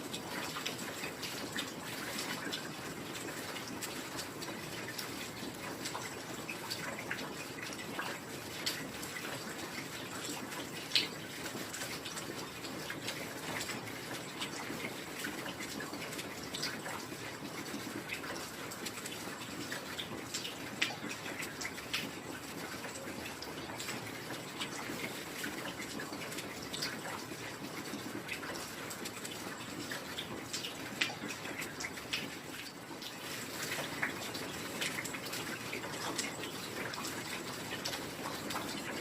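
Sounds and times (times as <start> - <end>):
close drips and splashes: 0.0 - 39.0.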